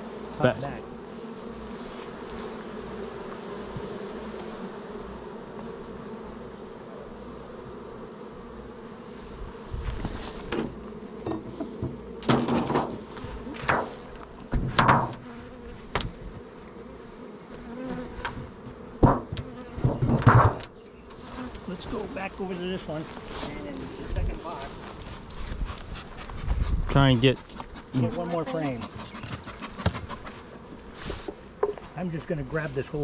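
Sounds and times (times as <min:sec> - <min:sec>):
bees buzzing: 0:00.0 - 0:33.0
wooden hive parts knocking: 0:18.2 - 0:20.8.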